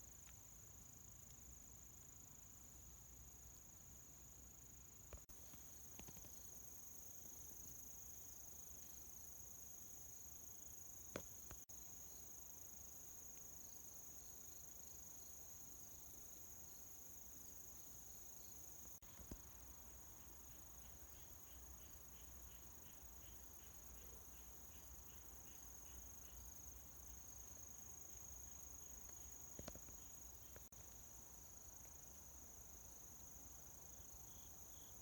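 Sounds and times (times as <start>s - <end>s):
crickets chirping chorus: 0.0s - 35.0s.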